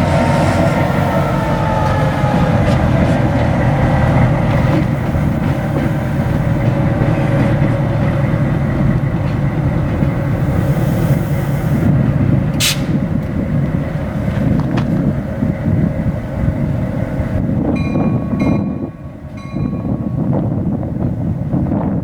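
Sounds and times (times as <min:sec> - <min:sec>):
diesel locomotive engine running: 0:00.0 - 0:22.0
short sharp hiss: 0:12.6 - 0:13.0.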